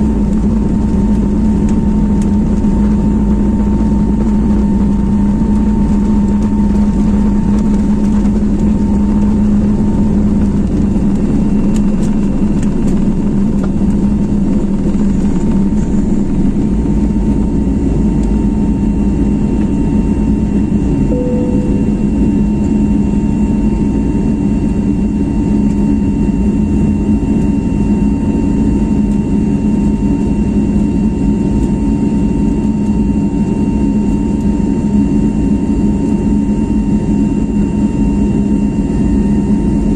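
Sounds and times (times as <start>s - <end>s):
jet engines droning: 0.0s - 39.9s
steady whining tones: 21.1s - 23.7s.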